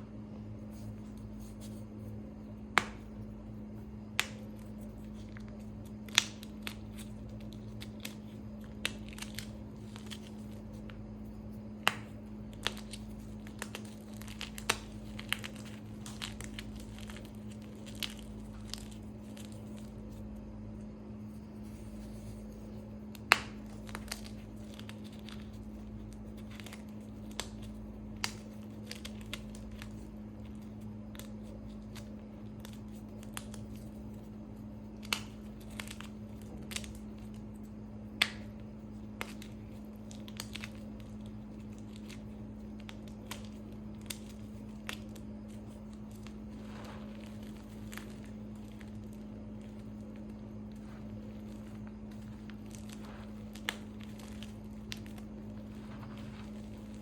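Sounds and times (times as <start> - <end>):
steady low hum: 0.0 - 57.0
chalk being crushed: 21.4 - 57.0.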